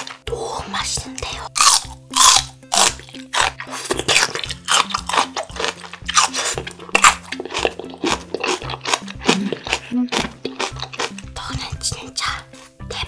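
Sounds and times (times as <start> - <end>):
soft background music: 0.0 - 13.0
celery crunching while chewed: 1.5 - 11.4.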